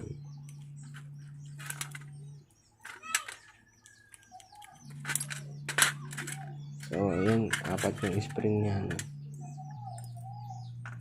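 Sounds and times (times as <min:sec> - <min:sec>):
low steady hum: 0:00.0 - 0:11.0
small metal clicks and snaps: 0:02.8 - 0:10.2.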